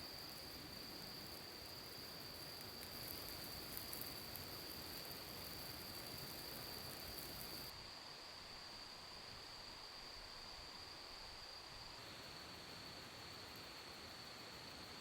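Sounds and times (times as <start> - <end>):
crickets trilling: 0.0 - 7.7
soft hiss: 0.0 - 15.0.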